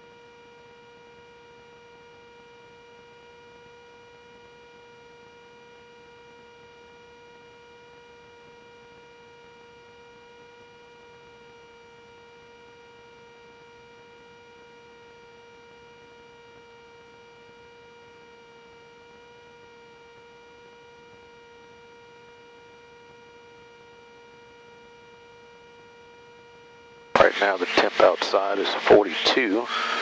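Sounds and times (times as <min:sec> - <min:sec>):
aircraft cockpit drone: 0:27.2 - 0:30.0.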